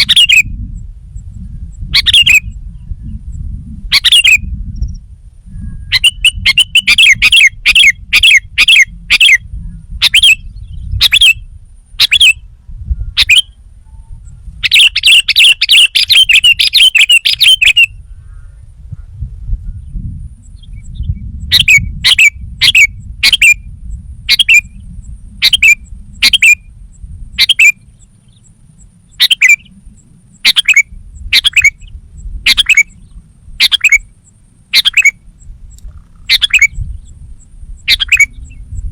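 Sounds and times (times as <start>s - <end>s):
bulbul calling: 0.0s - 0.5s, 1.9s - 2.6s, 3.9s - 4.5s, 5.8s - 9.4s, 10.0s - 11.4s, 12.0s - 12.5s, 13.2s - 18.6s, 21.5s - 23.6s, 24.3s - 24.8s, 25.4s - 26.7s, 27.3s - 38.8s.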